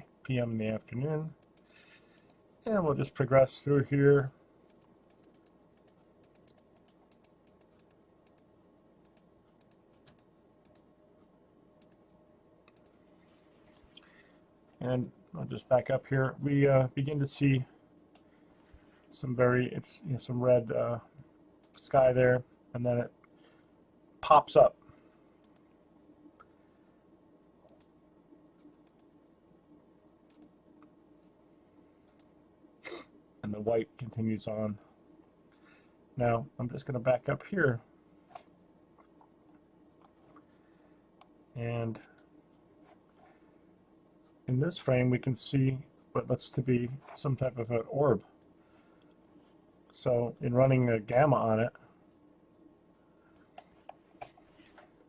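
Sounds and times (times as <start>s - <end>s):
faint room hum: 0.0s - 55.0s
computer keys clicking: 1.4s - 2.4s, 4.7s - 10.9s, 11.8s - 13.0s, 28.6s - 29.1s, 30.3s - 30.9s, 32.0s - 32.3s.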